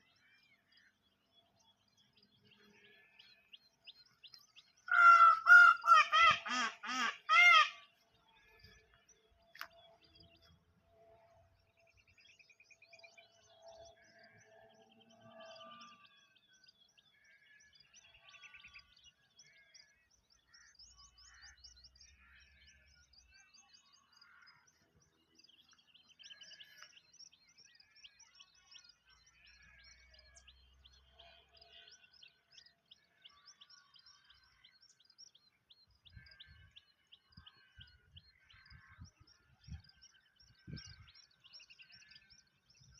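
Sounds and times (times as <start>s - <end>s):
small songbirds chirping: 0.0s - 42.9s.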